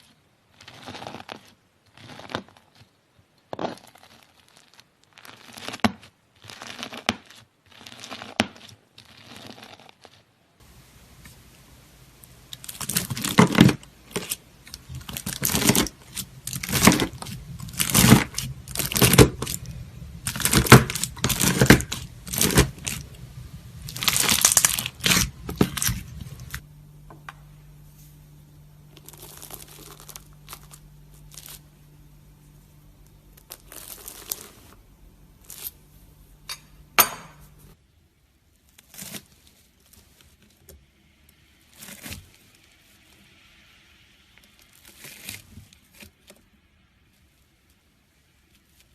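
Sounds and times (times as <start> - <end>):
knife cutting crunchy slime: 0.0 - 10.3, 12.6 - 23.1, 23.8 - 26.6.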